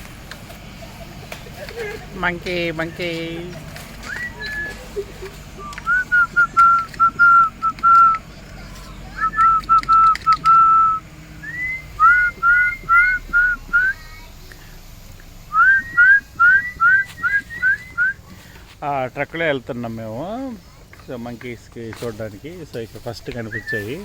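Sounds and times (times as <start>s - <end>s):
short upward whistled notes: 9.2s - 14.0s.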